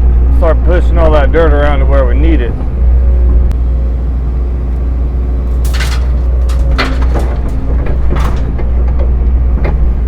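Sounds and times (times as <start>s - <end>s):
excavator diesel engine running: 0.0s - 10.0s
scraping knocks: 5.4s - 10.0s.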